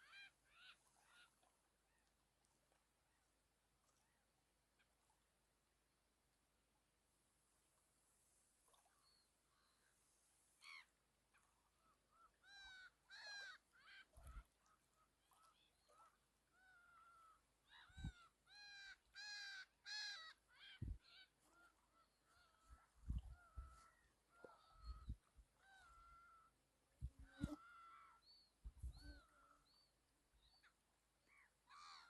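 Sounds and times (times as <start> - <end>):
soft low thumps: 28.6 - 29.1.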